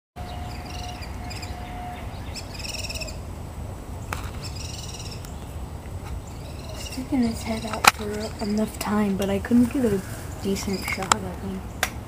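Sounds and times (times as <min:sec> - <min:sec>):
bird calling rapidly: 0:00.2 - 0:03.3, 0:04.0 - 0:05.6, 0:06.2 - 0:09.2.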